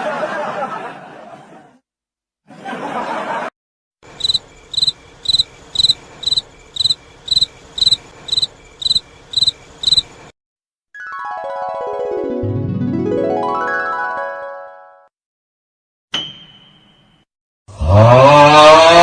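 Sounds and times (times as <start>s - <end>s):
crickets chirping: 4.0s - 10.3s.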